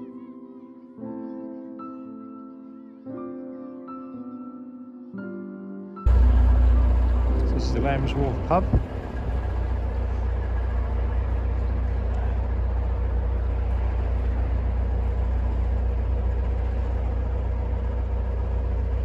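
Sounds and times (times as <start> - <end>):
boat diesel engine rumbling: 6.1 - 19.0
faint steady hum: 6.1 - 19.0.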